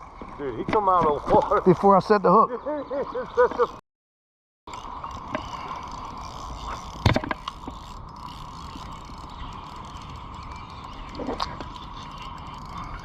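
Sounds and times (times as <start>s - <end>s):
fishing reel whirring: 4.7s - 13.0s.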